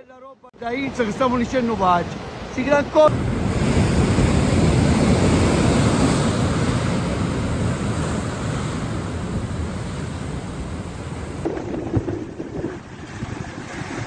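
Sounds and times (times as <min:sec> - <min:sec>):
rush of water: 0:00.6 - 0:14.0
wind buffeting microphone: 0:03.1 - 0:14.0.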